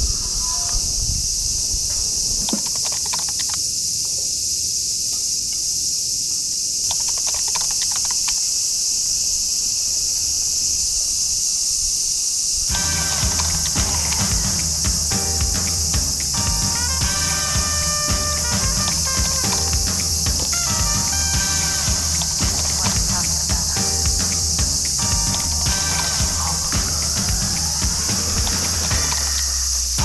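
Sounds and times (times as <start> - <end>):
insects chorus: 0.0 - 30.0
music: 12.7 - 30.0.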